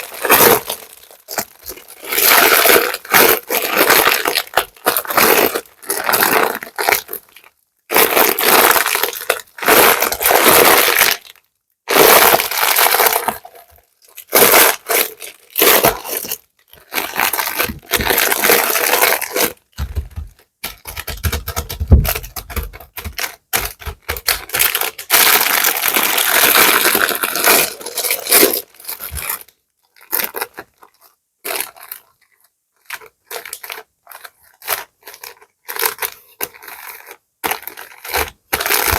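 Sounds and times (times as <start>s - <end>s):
plastic bags rustling: 0.0s - 7.4s, 14.3s - 20.4s, 24.2s - 30.5s.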